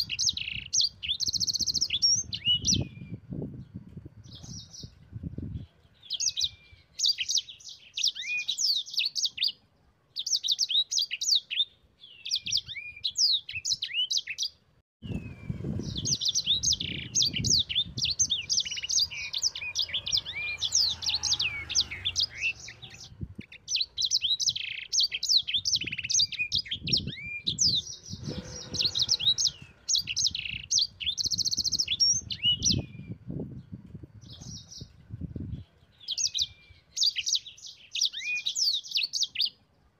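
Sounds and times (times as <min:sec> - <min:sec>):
songbird twittering: 0:00.0 - 0:09.6, 0:10.2 - 0:39.6
low rumbling noise: 0:27.9 - 0:30.0.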